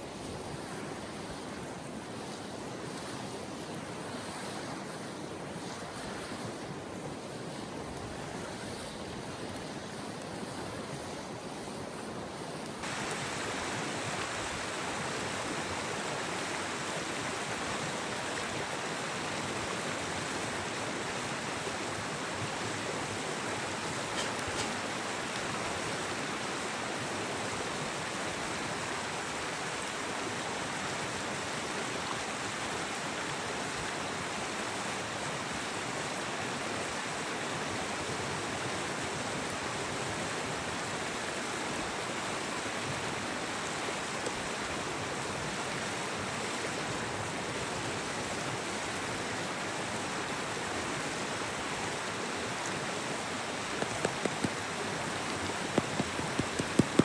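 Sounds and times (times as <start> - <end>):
mountain stream rushing: 0.0 - 57.0
sharp clicks: 53.8 - 54.6, 55.7 - 57.0.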